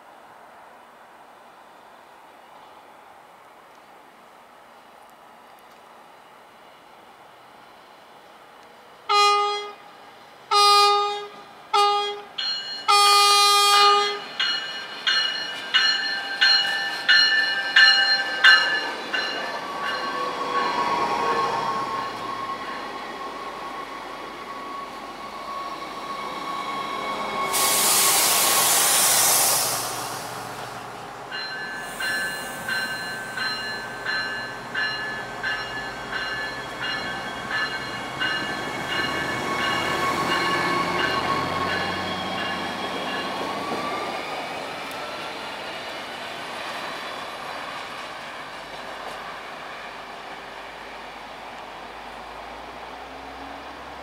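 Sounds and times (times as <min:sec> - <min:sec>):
train bell ringing: 0:12.3 - 0:22.9, 0:31.3 - 0:43.8
air hiss: 0:27.2 - 0:31.0, 0:31.7 - 0:33.4.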